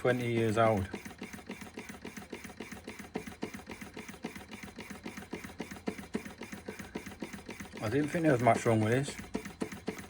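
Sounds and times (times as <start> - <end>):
small engine parts clicking steadily: 0.0 - 10.0.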